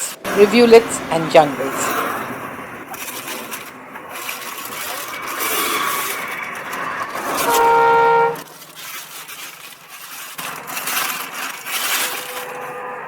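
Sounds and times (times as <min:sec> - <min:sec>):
road noise: 0:00.0 - 0:09.8, 0:10.4 - 0:13.0
vehicle horn honking: 0:07.4 - 0:08.4.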